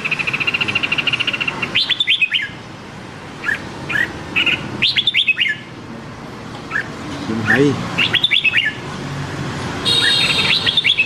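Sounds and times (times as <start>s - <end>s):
bird chattering trill: 0.0s - 2.6s, 3.4s - 5.7s, 6.7s - 8.8s, 9.9s - 11.0s.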